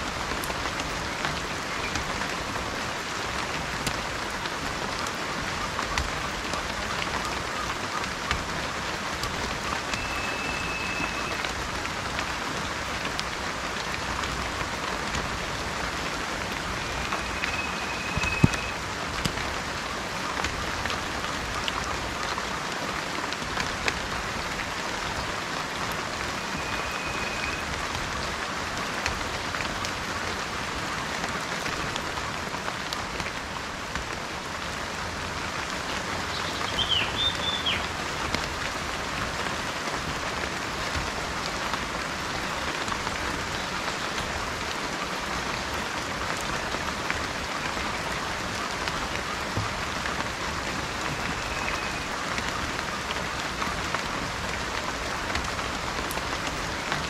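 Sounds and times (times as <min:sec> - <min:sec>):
steady rain falling: 0:00.0 - 0:57.0
bird whistles and chirps: 0:09.9 - 0:11.4, 0:16.8 - 0:18.8, 0:26.6 - 0:27.6, 0:36.3 - 0:37.8.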